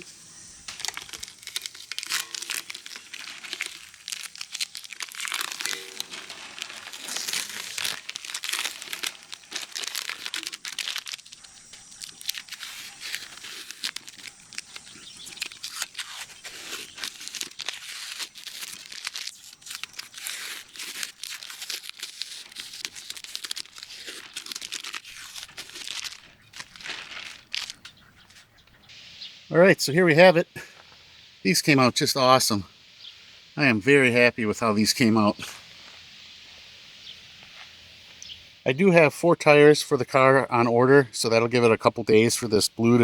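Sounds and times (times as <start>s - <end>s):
tape and paper ripping and crinkling: 0.6s - 27.9s.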